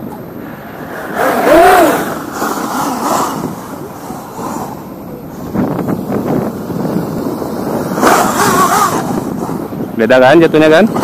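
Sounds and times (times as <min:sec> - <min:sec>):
tyre and driving noise: 0:00.0 - 0:11.0
electric toy truck motor whining: 0:01.0 - 0:04.8, 0:05.5 - 0:09.8.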